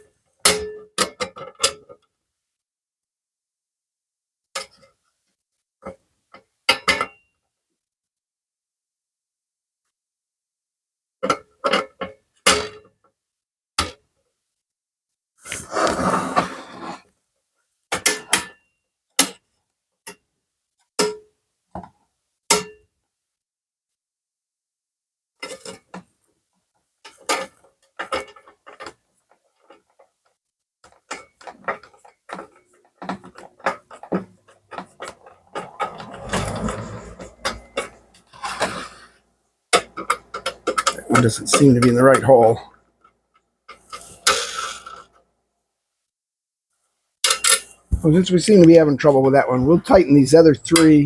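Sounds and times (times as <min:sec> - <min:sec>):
rough scraping noise: 0:15.5 - 0:17.1, 0:34.8 - 0:39.2.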